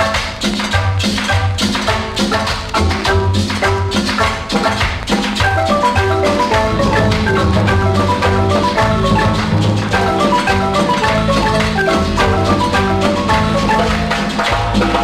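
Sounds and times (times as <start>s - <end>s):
light percussion: 0.0s - 15.0s
marimba music: 0.0s - 15.0s
bass line: 5.4s - 15.0s.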